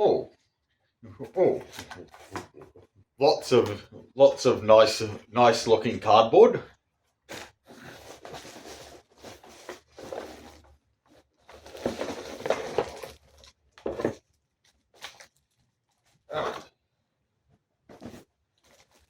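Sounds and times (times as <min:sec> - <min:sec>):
cardboard rustling and scraping: 0:01.5 - 0:02.9, 0:07.2 - 0:16.3, 0:17.9 - 0:19.0
cardboard scuffs: 0:07.3 - 0:13.2, 0:17.9 - 0:19.0.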